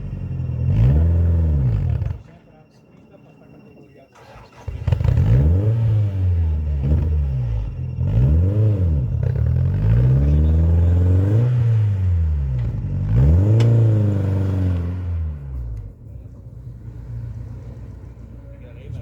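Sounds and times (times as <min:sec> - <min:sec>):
rally car engine revving: 0:00.0 - 0:02.4, 0:04.2 - 0:19.0.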